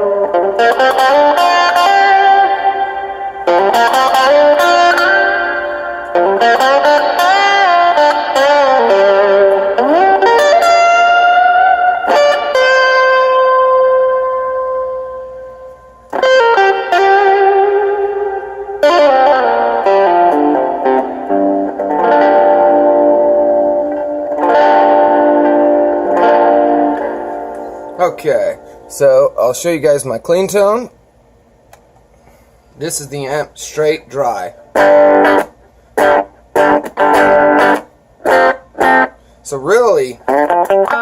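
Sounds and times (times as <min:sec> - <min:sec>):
overdriven electric guitar lead: 0:00.0 - 0:28.9, 0:33.1 - 0:41.0.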